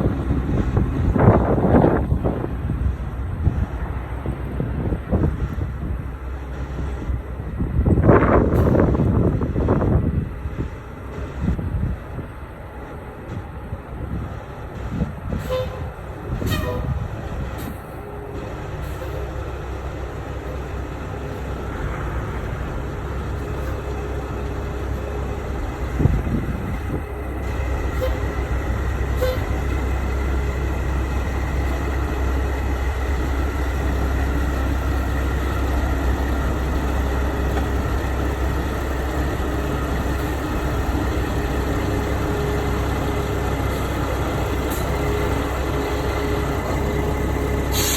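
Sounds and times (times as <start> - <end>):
truck engine rumbling: 0.0 - 47.9.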